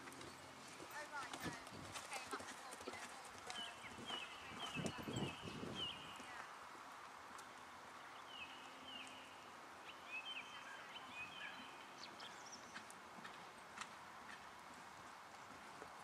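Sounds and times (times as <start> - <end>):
small birds chirping: 0.0 - 6.5, 7.4 - 13.4.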